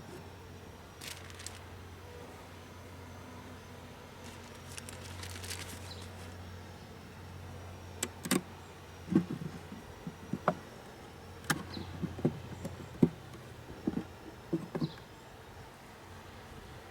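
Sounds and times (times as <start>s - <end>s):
bees buzzing: 6.8s - 15.4s
sharp knocks and clicks: 9.1s - 10.7s, 11.4s - 15.0s.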